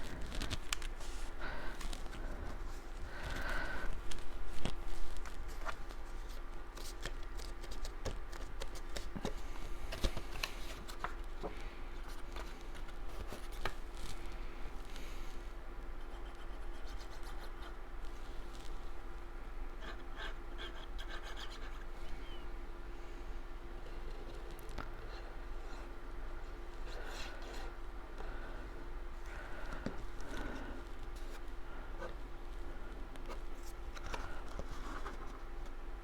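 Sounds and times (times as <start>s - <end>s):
steady background hum: 0.0s - 36.0s
cardstock rustling and clicking: 3.2s - 14.2s.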